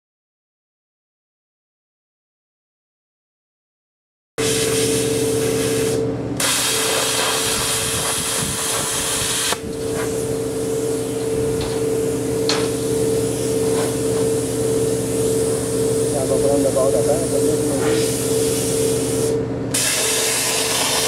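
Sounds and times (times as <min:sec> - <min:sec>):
plasma cutter hissing: 0:04.4 - 0:21.0.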